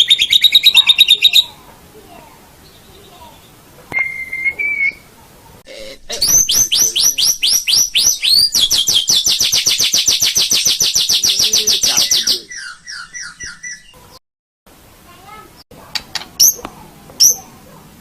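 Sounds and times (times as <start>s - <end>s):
bird singing whistles and trills: 2.6s - 5.1s, 6.2s - 14.0s.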